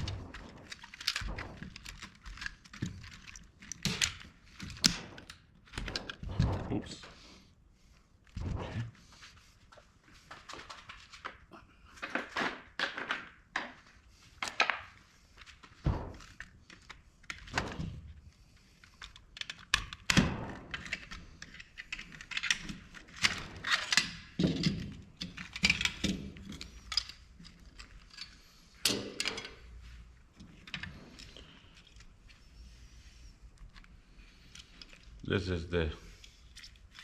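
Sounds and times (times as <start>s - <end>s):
plastic and metal parts knocking: 0.0s - 6.5s.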